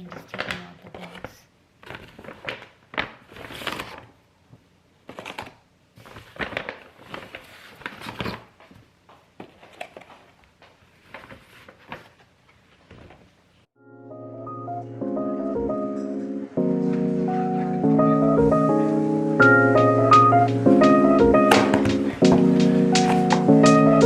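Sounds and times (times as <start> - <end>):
crinkling rustles: 0.0 - 13.7.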